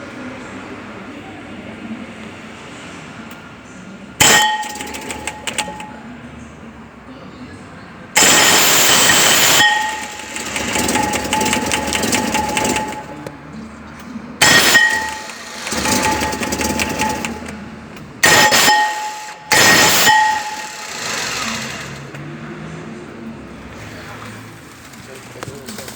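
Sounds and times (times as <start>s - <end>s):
starter harsh bursts: 4.2s - 6.2s, 8.2s - 13.6s, 14.4s - 22.6s
engine starter whine: 4.2s - 6.6s, 8.2s - 25.0s.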